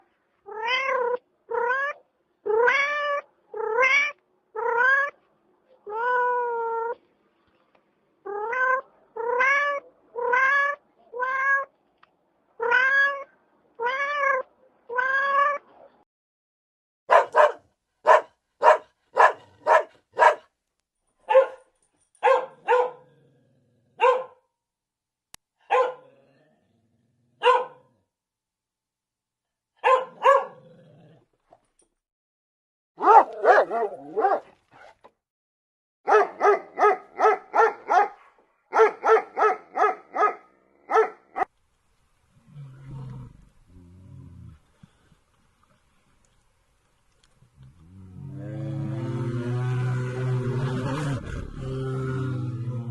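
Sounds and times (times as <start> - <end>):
cat meowing: 0.5 - 5.2, 8.3 - 11.7, 12.6 - 15.7
dog barking: 17.1 - 20.5, 21.2 - 23.1, 24.0 - 24.4, 25.6 - 26.1, 27.4 - 27.9, 29.8 - 30.6, 33.0 - 34.5, 36.1 - 41.5.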